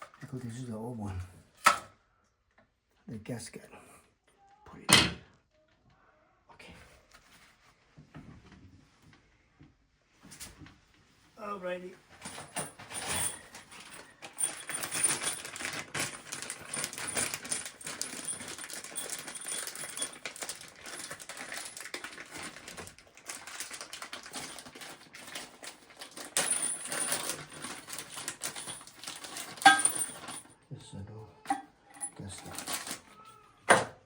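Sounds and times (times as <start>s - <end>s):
hardware clicking and clinking: 12.2s - 30.6s, 31.4s - 33.9s.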